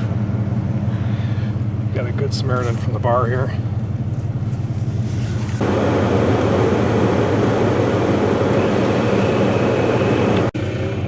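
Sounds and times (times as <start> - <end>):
car engine humming: 0.0 - 11.0
loud rushing noise: 5.6 - 10.6.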